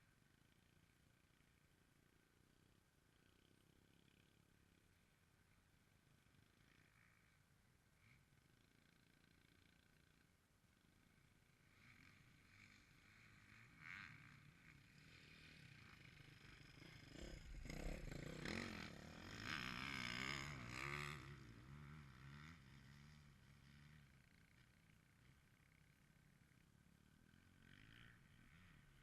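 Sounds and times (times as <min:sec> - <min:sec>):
dirt bike engine passing: 0:11.5 - 0:29.0.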